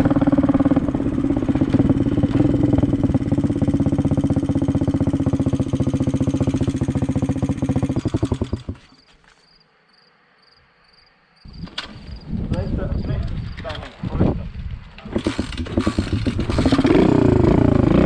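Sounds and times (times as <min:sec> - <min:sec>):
small motorcycle engine running: 0:00.0 - 0:09.0, 0:15.0 - 0:18.0
clatter: 0:01.5 - 0:09.1, 0:14.9 - 0:18.0.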